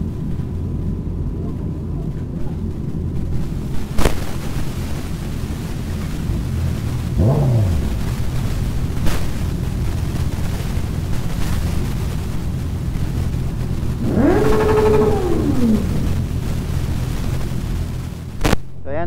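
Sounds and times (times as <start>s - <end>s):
motorcycle engines idling: 4.7s - 18.3s
motorcycle engine revving: 5.6s - 12.0s, 13.0s - 18.1s.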